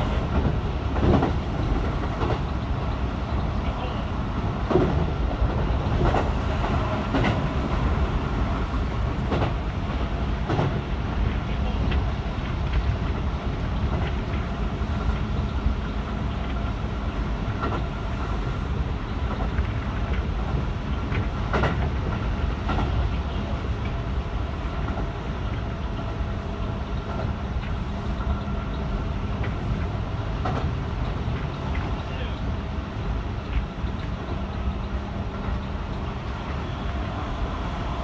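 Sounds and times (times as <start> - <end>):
electric train rolling rumble: 0.0 - 38.0.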